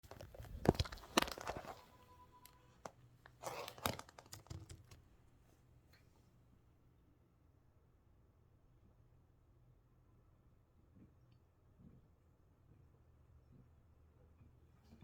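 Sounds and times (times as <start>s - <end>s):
rustling: 0.0s - 5.1s.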